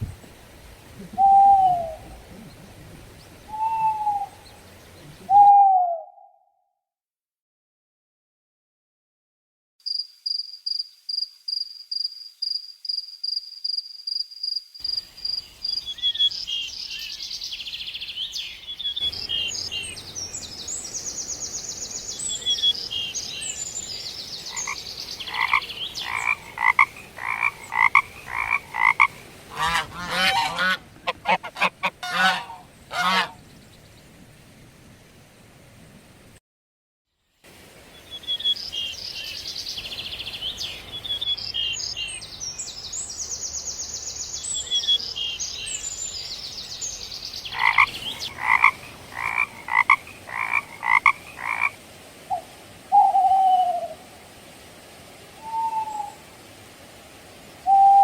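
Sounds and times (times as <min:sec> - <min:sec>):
frogs croaking: 0:18.8 - 0:33.4, 0:47.2 - 0:53.3.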